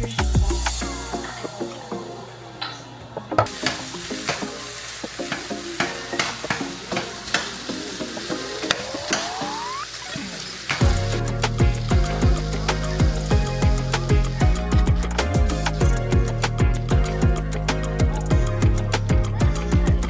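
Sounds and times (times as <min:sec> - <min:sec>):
food sizzling in a frying pan: 0:03.5 - 0:11.2.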